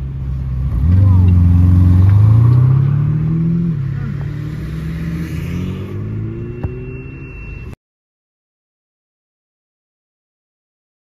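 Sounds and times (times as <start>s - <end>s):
car engine accelerating: 0.0s - 7.8s.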